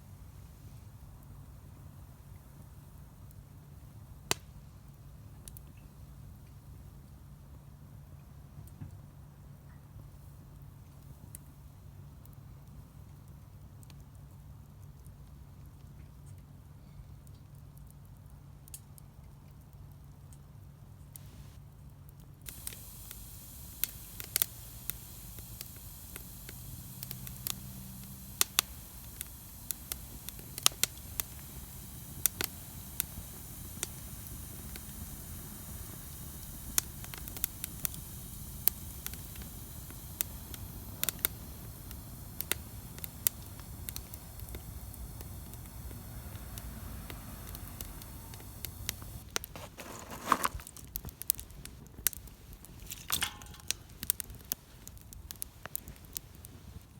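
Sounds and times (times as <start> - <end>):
wood fire crackling and popping: 0.5 - 6.7, 10.2 - 16.5, 17.2 - 56.9
low rush of flame: 22.5 - 56.9.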